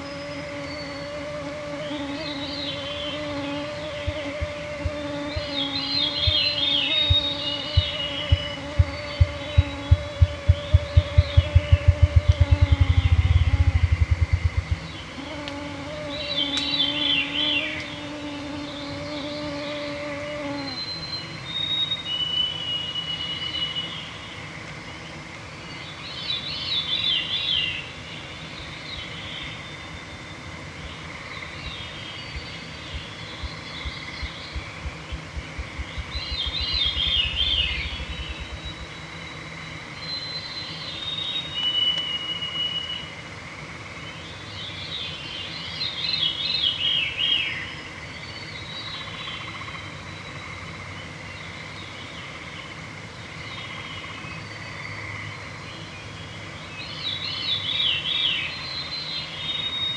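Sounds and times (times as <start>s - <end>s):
bird singing spiralling song: 0.0s - 24.1s, 31.6s - 43.0s
low thumping into whir: 7.1s - 15.2s, 32.9s - 39.0s.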